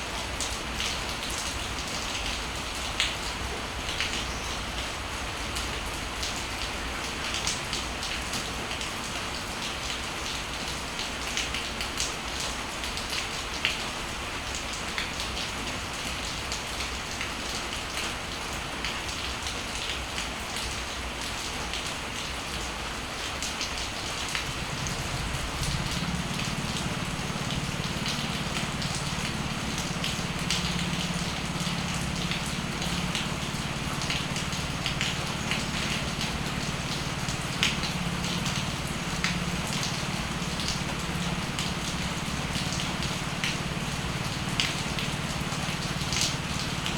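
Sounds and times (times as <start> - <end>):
raindrops ticking on surfaces: 0.0 - 46.9
steady rain falling: 0.0 - 46.9
low steady hum: 24.5 - 46.9.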